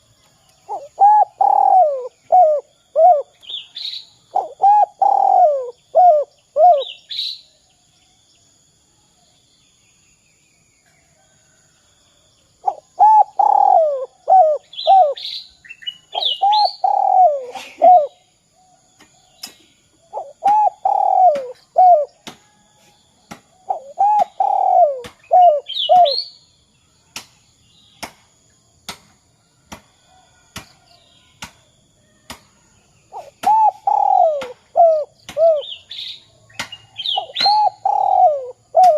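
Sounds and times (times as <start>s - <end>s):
dove cooing: 0.7s - 3.3s, 4.3s - 7.0s, 12.6s - 15.2s, 16.2s - 18.2s, 20.1s - 22.2s, 23.7s - 26.2s, 33.1s - 35.8s, 37.1s - 38.9s
small bird chirping: 12.6s - 18.3s, 23.2s - 26.5s, 33.0s - 38.9s.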